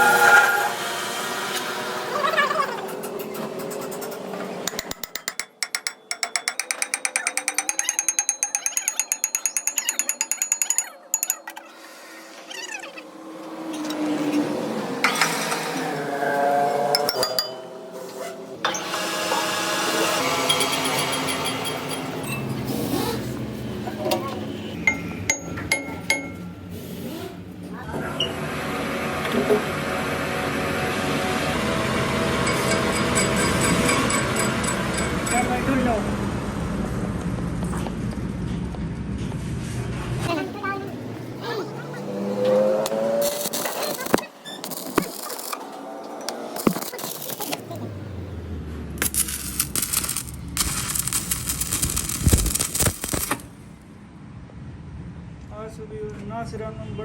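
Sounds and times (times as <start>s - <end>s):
metal part clinking: 4.7s - 11.6s, 49.0s - 53.5s
metal ratchet clicking: 4.7s - 11.6s, 49.0s - 53.5s
thin metallic ringing: 4.9s - 11.8s, 16.9s - 17.9s, 20.4s - 22.7s, 49.0s - 53.4s
motor-driven machine running: 49.0s - 53.5s.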